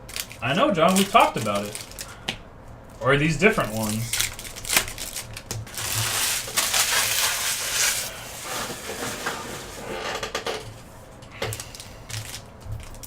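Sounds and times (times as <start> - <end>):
wrappers crinkling and rustling: 0.1 - 2.2, 3.6 - 9.8, 11.5 - 13.0.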